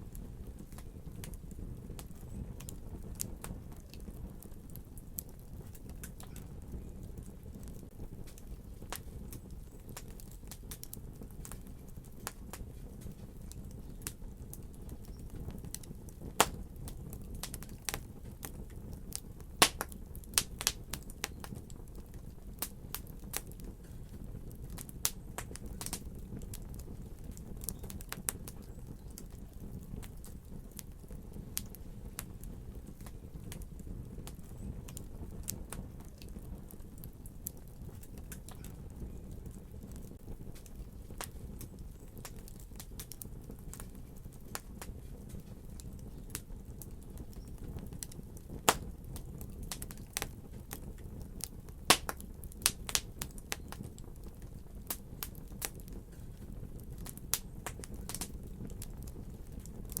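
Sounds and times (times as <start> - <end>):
fire crackling and popping: 0.0 - 60.0.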